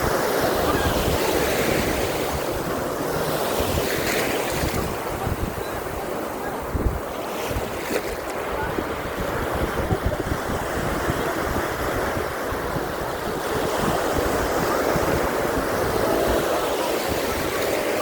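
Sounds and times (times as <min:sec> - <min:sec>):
surf washing on beach: 0:00.0 - 0:18.0
wind buffeting microphone: 0:00.0 - 0:18.0.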